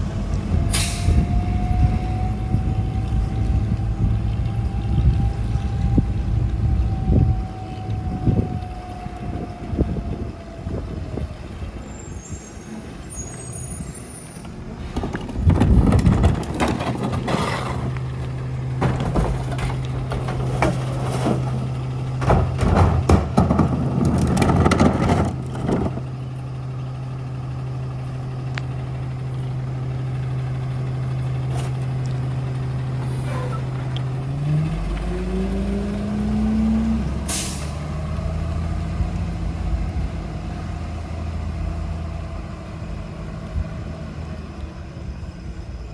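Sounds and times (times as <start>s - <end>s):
truck engine revving: 0.0s - 11.8s, 14.1s - 44.3s
air brake hiss: 0.7s - 1.3s, 37.3s - 37.8s
metal clanks: 15.0s - 26.0s.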